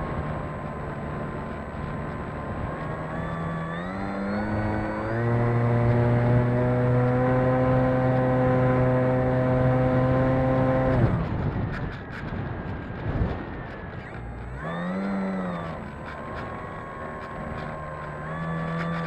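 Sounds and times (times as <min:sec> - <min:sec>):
electric motor and propeller whine: 0:00.0 - 0:19.0
wind buffeting microphone: 0:07.9 - 0:17.8.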